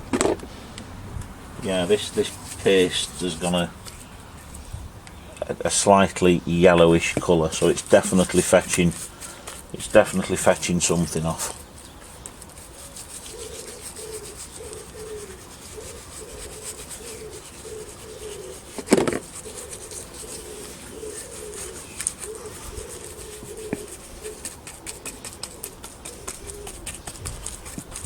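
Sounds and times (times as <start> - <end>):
pigeon cooing: 12.7 - 28.0.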